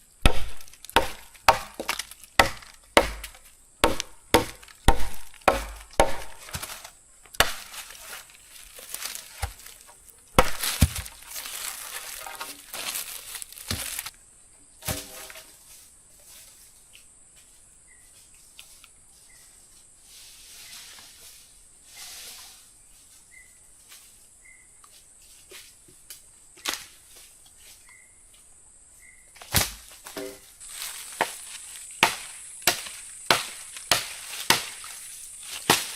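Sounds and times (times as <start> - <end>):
rustling: 0.0 - 14.2, 29.6 - 35.9
wood being chopped: 0.2 - 7.9, 9.0 - 9.8, 10.4 - 14.1, 29.4 - 30.4, 31.0 - 35.9.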